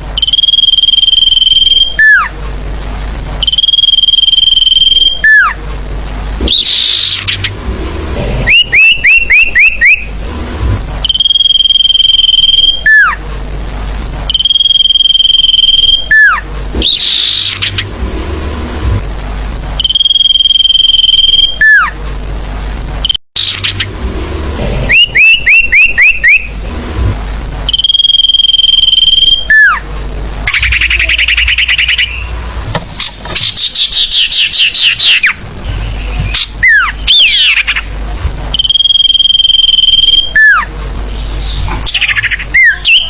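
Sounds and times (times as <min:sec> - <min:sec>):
bird whistling and chirping: 0:00.2 - 0:02.3, 0:03.4 - 0:05.6, 0:06.5 - 0:07.5, 0:08.4 - 0:10.1, 0:11.0 - 0:13.2, 0:14.3 - 0:17.8, 0:24.9 - 0:26.5, 0:27.7 - 0:29.8, 0:30.5 - 0:32.4, 0:33.4 - 0:37.8, 0:38.6 - 0:40.7, 0:41.4 - 0:43.0
buzzy bird trill: 0:00.2 - 0:02.4, 0:03.4 - 0:05.6, 0:06.4 - 0:07.6, 0:08.4 - 0:10.2, 0:11.0 - 0:13.2, 0:14.3 - 0:18.0, 0:19.8 - 0:22.0, 0:23.0 - 0:24.0, 0:24.9 - 0:26.8, 0:27.7 - 0:43.0.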